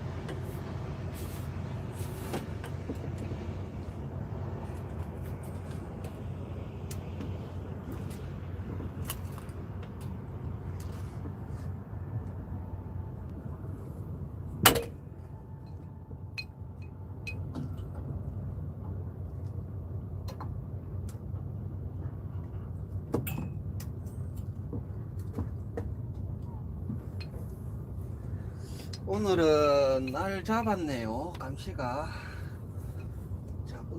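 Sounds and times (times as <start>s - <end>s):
boat engine droning: 0.0s - 33.9s.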